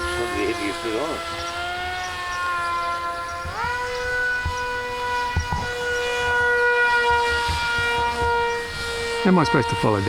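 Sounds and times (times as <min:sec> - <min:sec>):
model plane motor whining: 0:00.0 - 0:10.0.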